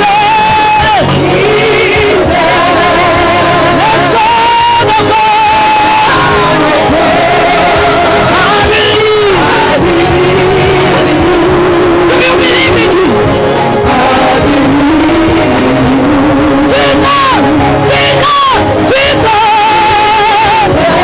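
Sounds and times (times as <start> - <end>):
worship singing with instruments: 0.0 - 21.0.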